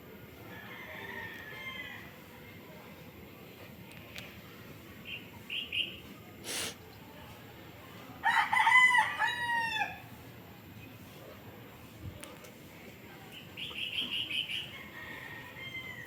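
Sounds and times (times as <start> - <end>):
rooster crowing: 0.5 - 2.1, 8.2 - 10.0, 14.7 - 16.0
brief hiss: 6.4 - 6.8.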